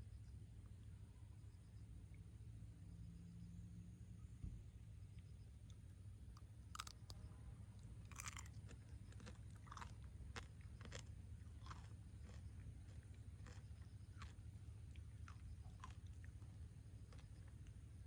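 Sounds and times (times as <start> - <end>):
low steady hum: 0.0 - 18.0
candy shell crunching: 6.8 - 7.1, 8.1 - 8.5.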